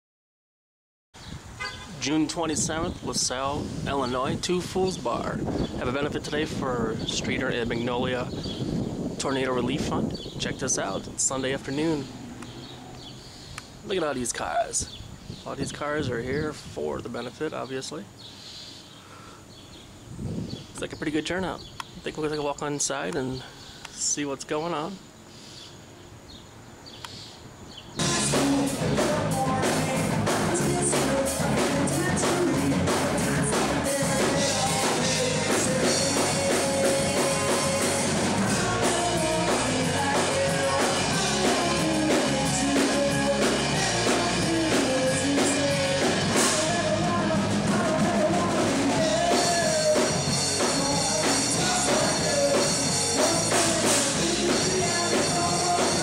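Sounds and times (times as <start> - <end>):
live rock band playing: 28.0 - 56.0
person singing: 28.0 - 56.0.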